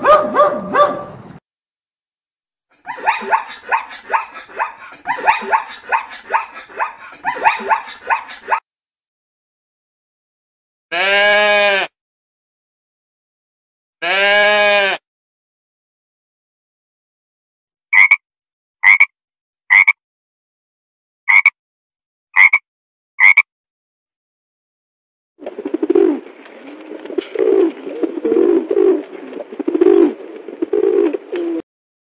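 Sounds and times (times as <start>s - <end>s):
frogs calling: 18.0s - 18.2s, 18.8s - 19.1s, 19.7s - 20.0s, 21.3s - 21.5s, 22.4s - 22.6s, 23.2s - 23.4s.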